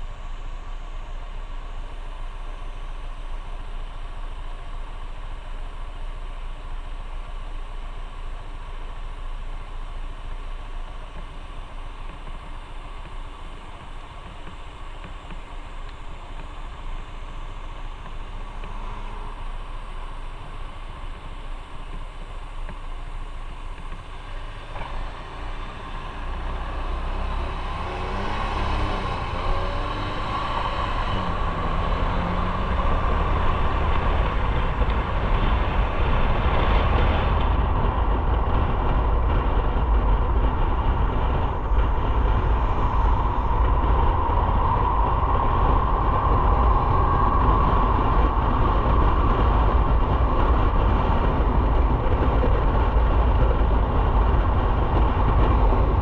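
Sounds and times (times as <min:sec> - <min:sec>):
wind rush on microphone: 0:10.9 - 0:56.0
motorcycle engine: 0:11.5 - 0:56.0.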